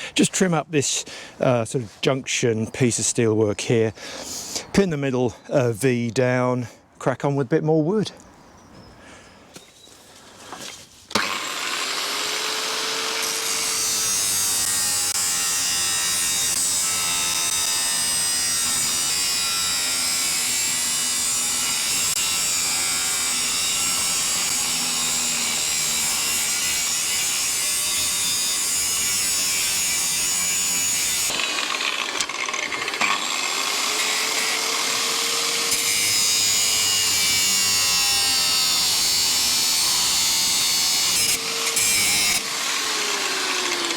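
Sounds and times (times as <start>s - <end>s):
angle grinder cutting steel: 11.1s - 43.9s.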